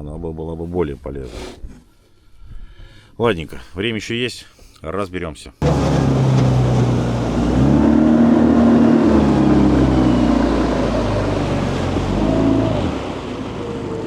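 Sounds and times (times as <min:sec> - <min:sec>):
outboard motor running: 0:05.6 - 0:14.0.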